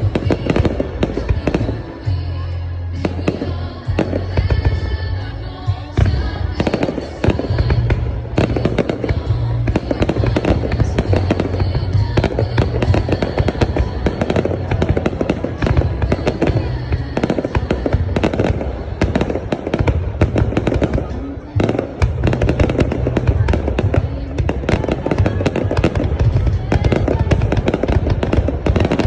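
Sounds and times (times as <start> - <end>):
fireworks crackling and banging: 0.0 - 29.0
music playing: 0.0 - 29.0.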